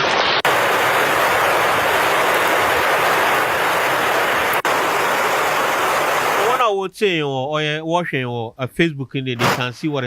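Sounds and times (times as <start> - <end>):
rushing flood water: 0.0 - 6.7.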